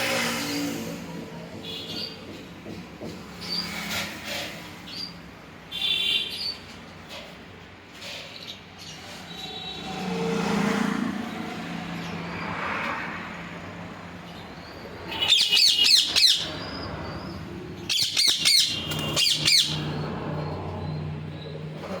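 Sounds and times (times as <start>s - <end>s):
parrot chirping screeches: 15.0s - 20.0s.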